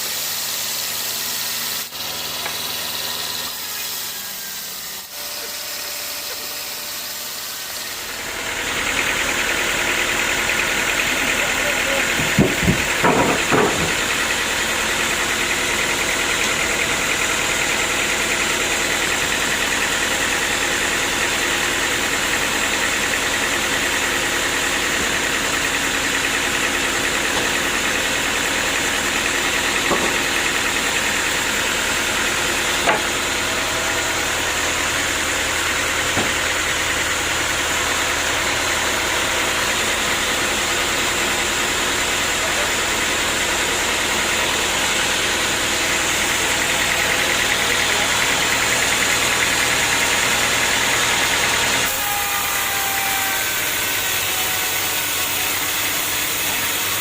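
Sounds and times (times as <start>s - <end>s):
sawmill machinery drone: 0.0s - 57.0s
knocks: 12.2s - 14.0s.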